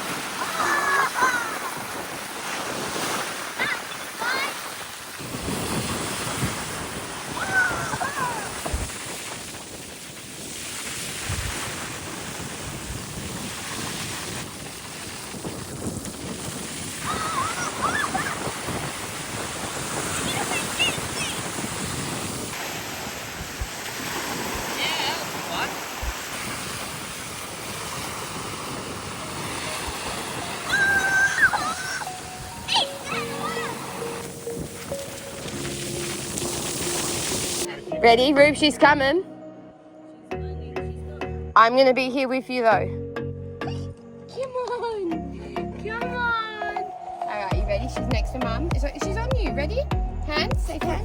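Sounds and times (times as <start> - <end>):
sea water washing: 0.0 - 37.9
waves on the shore: 0.0 - 39.1, 45.9 - 49.6
wind buffeting microphone: 0.0 - 39.2, 47.4 - 51.0
high rising and falling call: 30.6 - 34.1.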